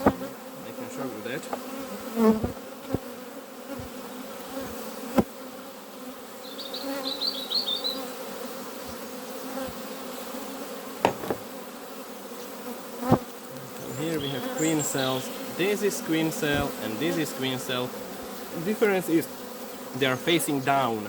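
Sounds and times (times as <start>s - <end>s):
bees buzzing: 0.0s - 21.0s
high twittering: 13.5s - 21.0s.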